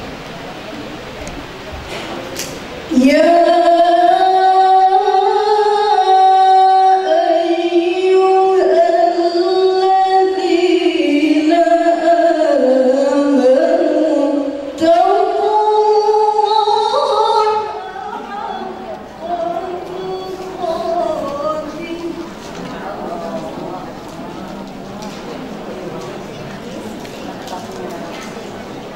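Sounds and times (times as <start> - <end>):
woman reciting melodically: 2.9 - 24.3.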